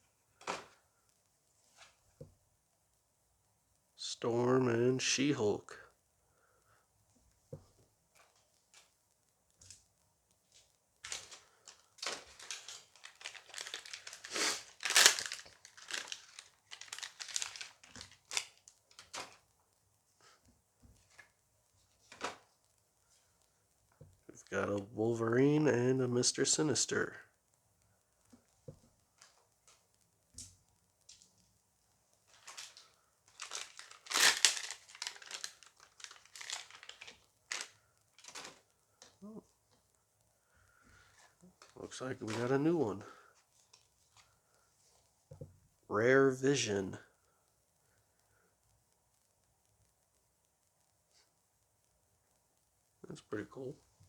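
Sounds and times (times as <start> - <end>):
foil wrapper crinkling and tearing: 11.0 - 19.4, 32.3 - 39.3.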